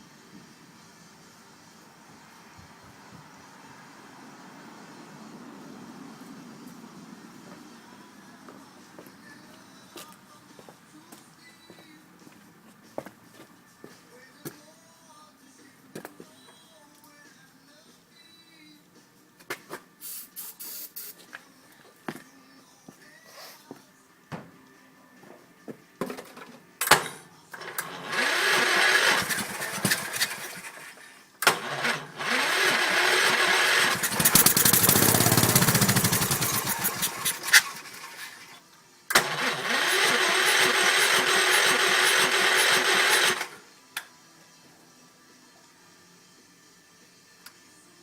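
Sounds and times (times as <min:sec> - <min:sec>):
electric starter cranking engine: 0:27.6 - 0:38.5, 0:39.1 - 0:43.6.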